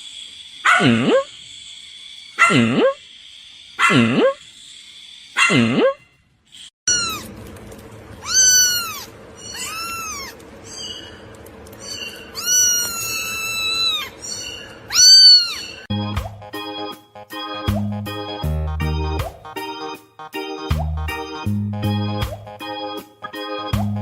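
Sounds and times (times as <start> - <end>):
cat meowing: 6.9 - 7.3, 8.2 - 10.4, 12.3 - 14.2, 14.9 - 15.8
keyboard music: 15.9 - 24.0.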